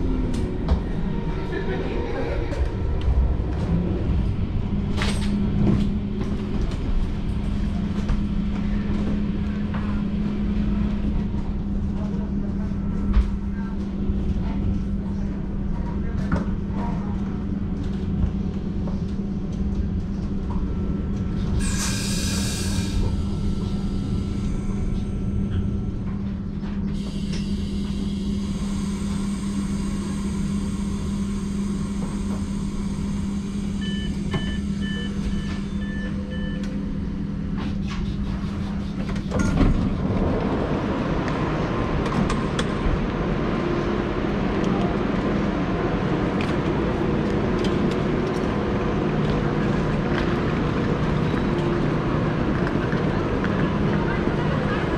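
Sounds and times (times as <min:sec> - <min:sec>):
train running hum and rumble: 0:00.0 - 0:54.9.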